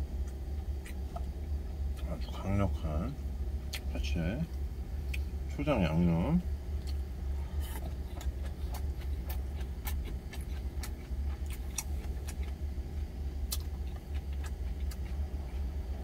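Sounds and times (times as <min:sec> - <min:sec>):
crisp chewing clicks: 0:08.1 - 0:12.6, 0:13.4 - 0:15.2.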